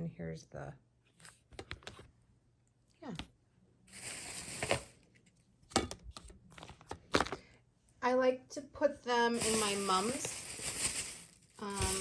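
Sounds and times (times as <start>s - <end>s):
plastic packaging crinkling: 3.9s - 5.2s, 9.4s - 12.0s.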